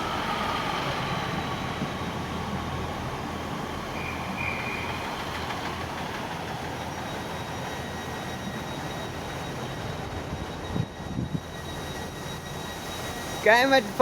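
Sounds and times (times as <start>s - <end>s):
train engine humming: 0.0s - 14.0s
faint high whine: 6.8s - 14.0s.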